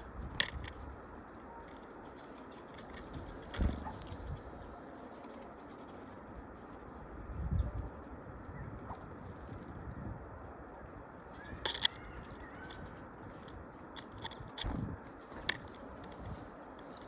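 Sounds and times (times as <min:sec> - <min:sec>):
bird wingbeats fluttering: 0:00.2 - 0:06.6, 0:07.7 - 0:10.0, 0:11.0 - 0:17.0.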